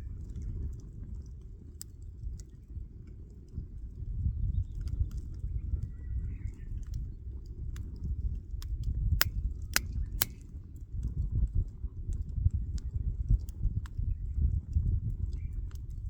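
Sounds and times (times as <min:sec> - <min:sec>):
wood fire crackling: 0:06.6 - 0:16.0
sharp snaps: 0:08.6 - 0:10.5.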